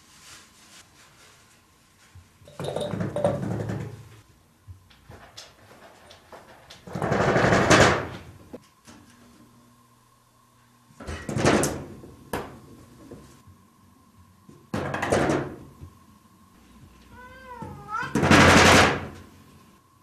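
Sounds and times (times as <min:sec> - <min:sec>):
cat rattling wooden sliding door: 0:05.8 - 0:08.2
cat meowing: 0:17.1 - 0:18.3.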